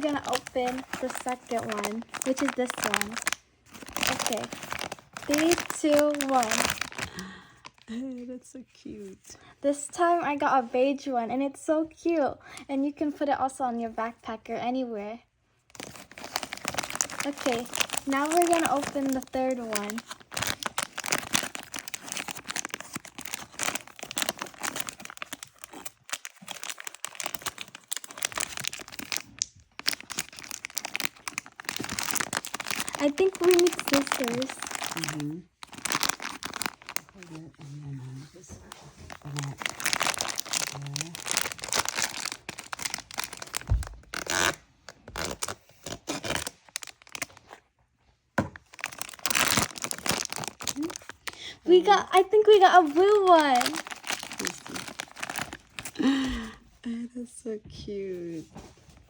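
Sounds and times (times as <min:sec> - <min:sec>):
packaging crinkling and tearing: 0:00.0 - 0:08.0, 0:15.7 - 0:37.5, 0:38.4 - 0:47.6, 0:48.4 - 0:56.6.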